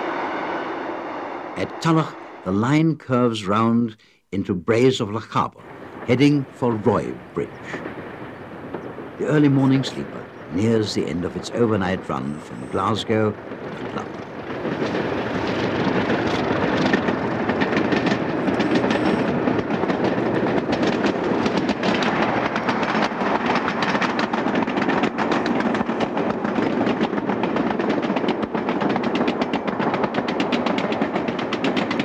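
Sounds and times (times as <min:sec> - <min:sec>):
train rumbling: 0:00.0 - 0:32.0
wheels clicking over rail joints: 0:09.6 - 0:32.0.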